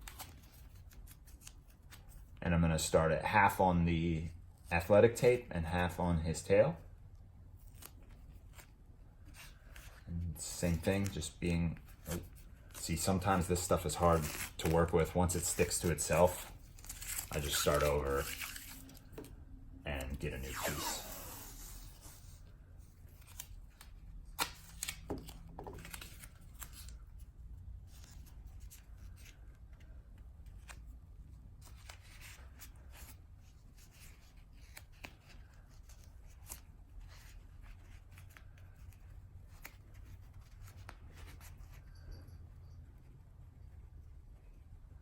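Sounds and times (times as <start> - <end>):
athletic tape tearing and wrapping: 12.0 - 19.1, 20.1 - 22.2.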